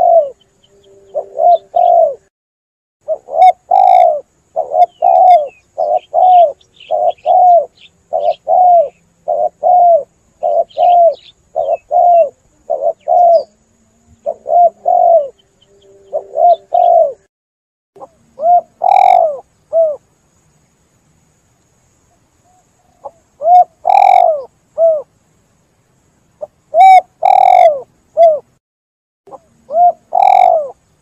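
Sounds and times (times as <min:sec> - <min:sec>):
dove cooing: 0:00.0 - 0:02.3, 0:03.0 - 0:17.3, 0:18.0 - 0:20.0, 0:22.5 - 0:25.1, 0:26.4 - 0:28.5, 0:29.3 - 0:30.8
small bird chirping: 0:00.0 - 0:02.3, 0:03.0 - 0:17.3, 0:18.0 - 0:20.8, 0:22.0 - 0:25.1, 0:26.3 - 0:28.6, 0:29.3 - 0:31.0.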